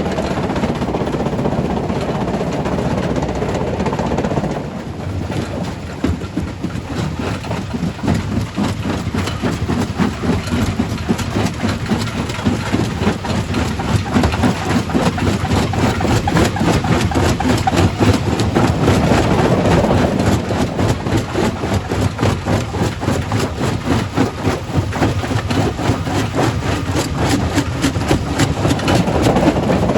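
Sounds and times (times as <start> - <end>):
heavy low machine drone: 0.0 - 29.9.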